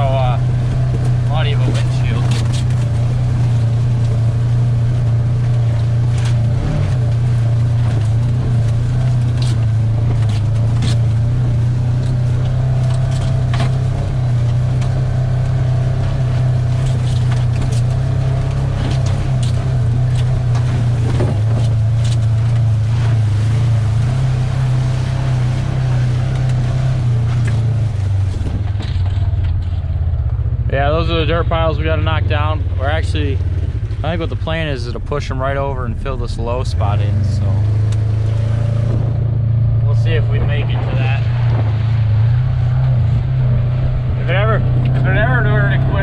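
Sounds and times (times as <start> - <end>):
vehicle engine droning: 0.0 - 46.0
short knocks and rattles: 16.2 - 23.2.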